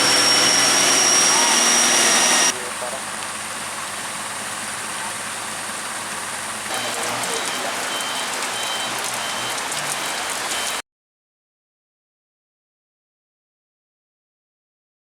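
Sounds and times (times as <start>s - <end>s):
steady rain: 3.1s - 10.8s
short high beeps: 6.7s - 10.8s.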